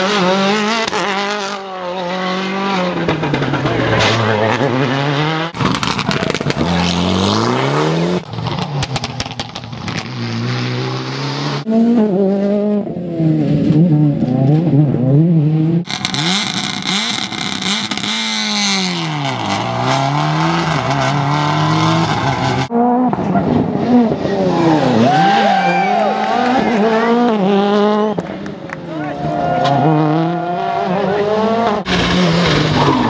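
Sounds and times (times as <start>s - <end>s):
rally car engines revving: 0.0s - 33.0s
sharp exhaust cracks: 15.9s - 19.6s.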